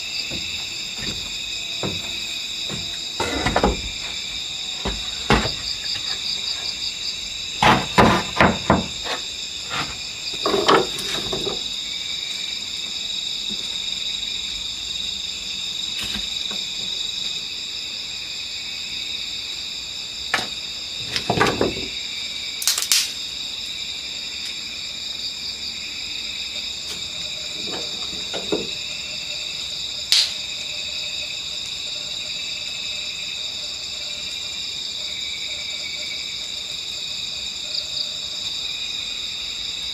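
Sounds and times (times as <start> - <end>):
crickets chirping at night: 0.0 - 39.9
knocking and clattering: 0.3 - 4.2, 4.8 - 6.2, 7.6 - 9.2.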